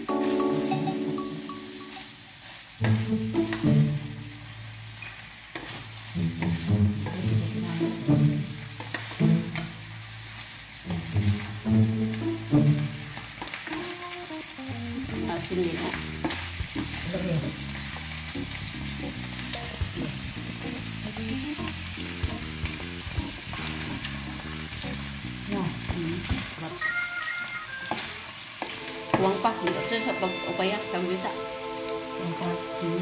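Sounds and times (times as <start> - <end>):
background music: 0.0 - 4.5, 6.2 - 9.9, 10.9 - 15.9, 28.8 - 33.0
vegetables sizzling in a pan: 0.0 - 33.0.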